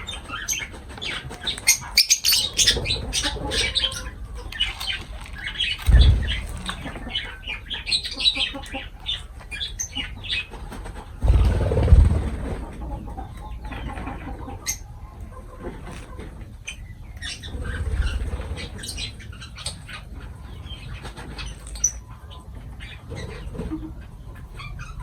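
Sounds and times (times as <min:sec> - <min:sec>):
wing flapping: 0:00.0 - 0:07.3, 0:10.8 - 0:12.9
lovebirds chattering: 0:00.0 - 0:12.2, 0:12.9 - 0:25.0.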